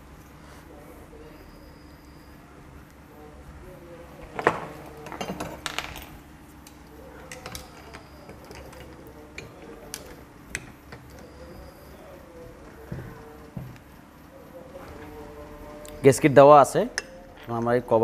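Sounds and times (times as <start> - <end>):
faint steady hum: 0.0 - 18.0
metal tools clinking: 7.2 - 12.4.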